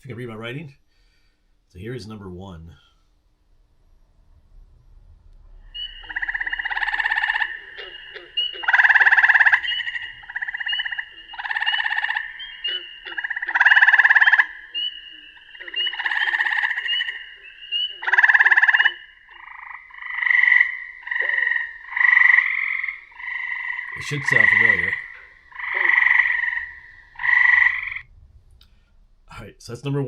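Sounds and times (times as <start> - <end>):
frog call trills from speaker: 5.7 - 28.1.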